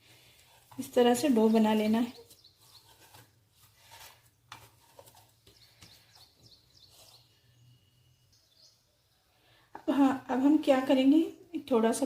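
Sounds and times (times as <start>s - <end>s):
faint bird chirps: 5.5s - 9.6s.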